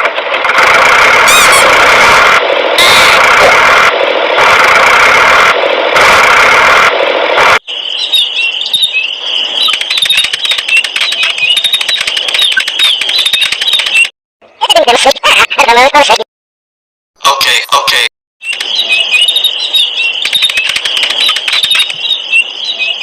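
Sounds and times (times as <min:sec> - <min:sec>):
engine running: 0:00.0 - 0:07.8, 0:18.4 - 0:22.0
rapid clicking: 0:09.6 - 0:14.1, 0:20.2 - 0:22.0.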